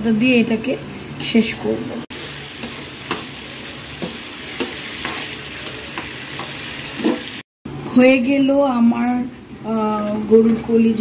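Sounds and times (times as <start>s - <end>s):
food sizzling in a frying pan: 2.1s - 8.0s.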